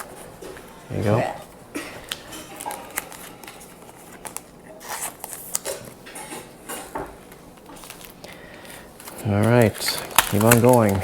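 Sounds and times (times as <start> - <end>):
trading cards being handled: 2.0 - 6.0, 7.7 - 11.0.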